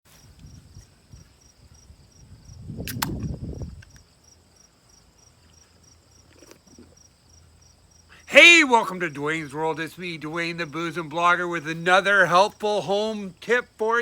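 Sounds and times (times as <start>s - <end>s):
crickets chirping: 0.1s - 14.0s
sharp clicks: 2.8s - 4.0s.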